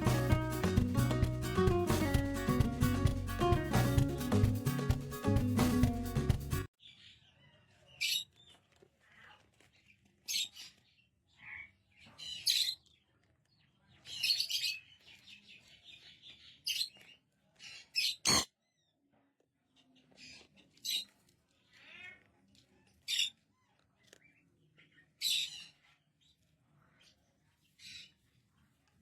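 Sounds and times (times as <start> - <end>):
parrot chirping and squawking: 18.0 - 18.5
sharp click: 18.3 - 18.5.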